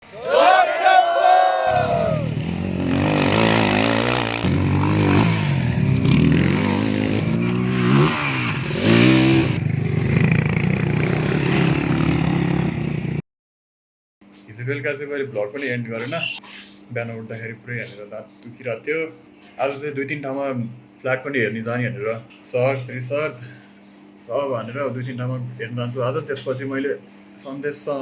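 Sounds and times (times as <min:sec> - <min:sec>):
motorcycle engine revving: 0:01.7 - 0:13.2.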